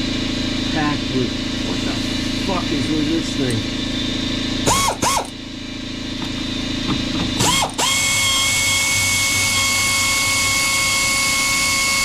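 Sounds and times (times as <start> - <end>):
power tool motor whining: 3.3 - 12.0
power tool trigger blip: 4.6 - 5.4.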